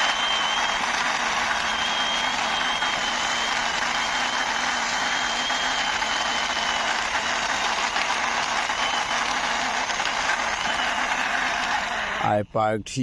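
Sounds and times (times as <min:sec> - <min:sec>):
faint high whine: 0:00.0 - 0:07.0
mechanical running noise: 0:00.0 - 0:12.3.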